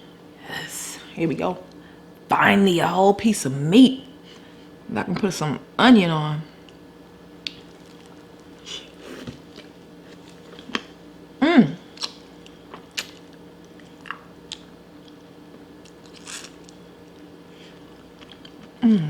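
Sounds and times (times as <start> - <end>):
biting and chewing crab: 15.8 - 18.8.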